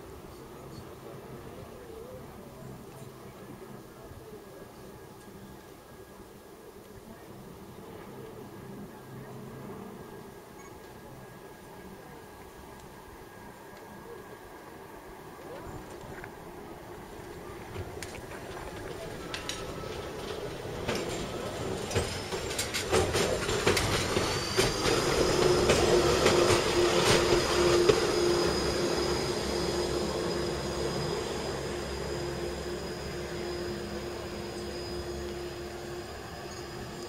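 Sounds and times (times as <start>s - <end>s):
train whine: 0.0s - 37.0s
train wheels clicking over rails: 17.2s - 37.0s.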